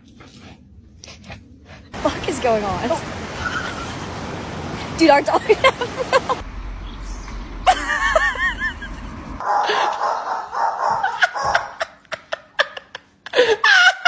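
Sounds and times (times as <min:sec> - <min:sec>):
person laughing: 0:05.3 - 0:06.4, 0:07.6 - 0:10.1, 0:10.8 - 0:14.0.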